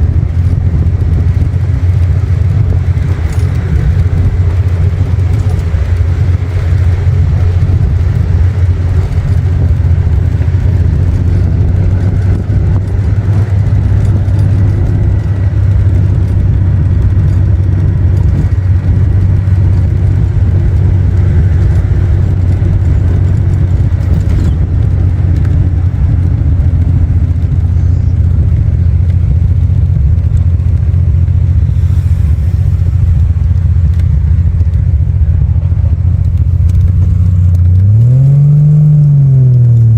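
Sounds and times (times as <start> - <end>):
car engine cruising drone: 0.0 - 39.9.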